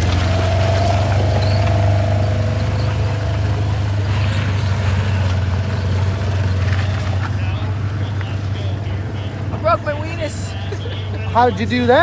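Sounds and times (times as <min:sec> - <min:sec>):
faint high tone: 0:00.0 - 0:05.6
low engine rumble: 0:00.0 - 0:12.0.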